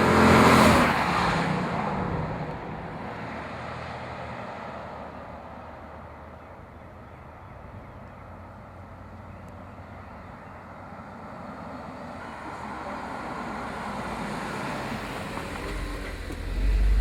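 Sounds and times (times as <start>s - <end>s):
car exhaust driving past: 14.7s - 17.0s.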